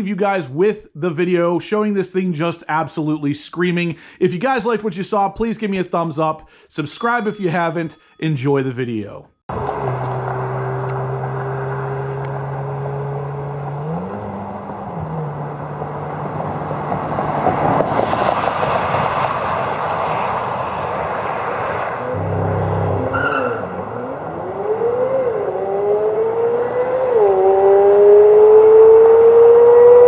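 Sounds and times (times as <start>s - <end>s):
car engine accelerating hard: 9.5s - 30.0s.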